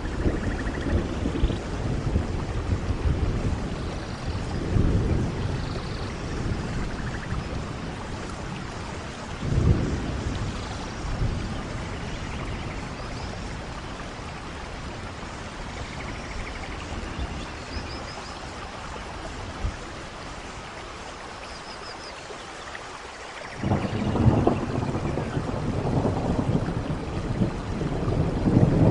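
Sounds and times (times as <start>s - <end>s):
thunder rolling: 0.0s - 13.0s, 23.6s - 28.9s
rain falling: 0.0s - 28.9s.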